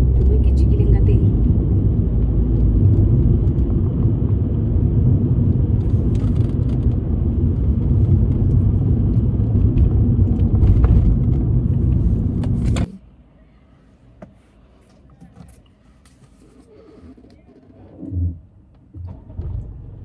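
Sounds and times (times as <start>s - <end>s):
car rumbling on the move: 0.0s - 13.0s, 17.0s - 20.0s.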